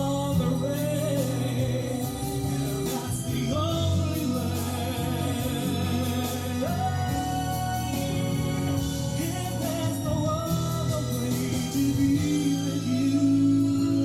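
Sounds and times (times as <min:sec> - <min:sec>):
song with singing voice: 0:00.0 - 0:14.0.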